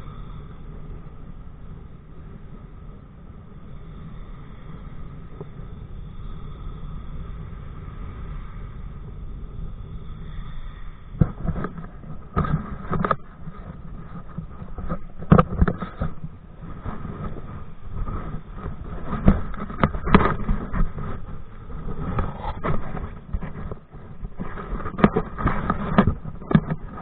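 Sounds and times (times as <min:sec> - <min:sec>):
wind rumbling on microphone: 0:00.0 - 0:27.0
water slapping against hull: 0:11.2 - 0:27.0.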